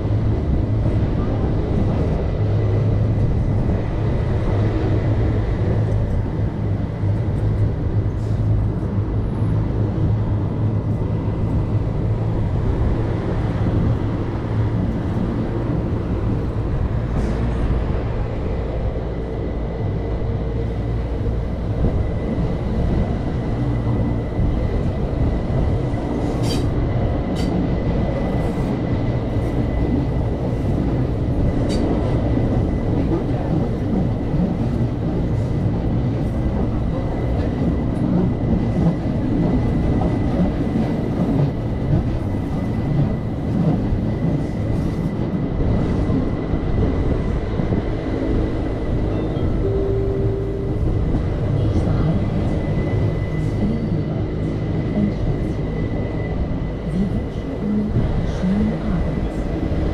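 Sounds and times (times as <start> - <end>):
wheels rumbling on rails: 0.0 - 59.9.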